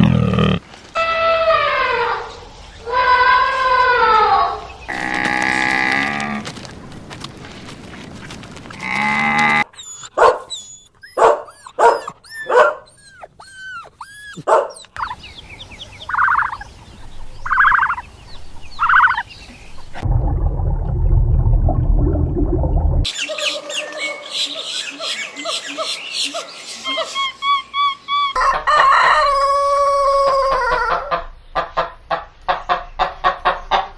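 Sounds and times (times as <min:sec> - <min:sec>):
animal rasping calls: 0:08.8 - 0:15.2
animal whining calls: 0:09.4 - 0:15.2
low rough rumbling: 0:19.9 - 0:23.1.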